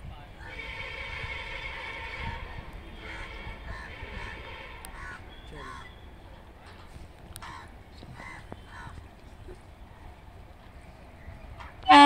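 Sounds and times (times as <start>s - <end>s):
birds harsh cries: 2.9s - 6.4s, 7.4s - 9.2s.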